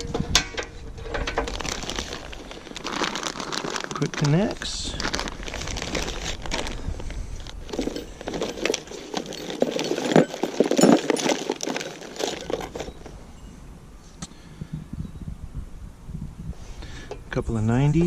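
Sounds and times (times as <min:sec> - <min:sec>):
plastic packaging crinkling: 0:01.1 - 0:13.1.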